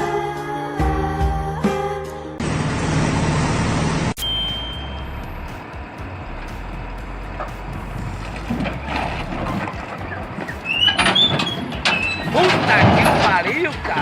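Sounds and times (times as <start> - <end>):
heavy engine noise: 2.4 - 14.0
high chirps: 4.2 - 5.6.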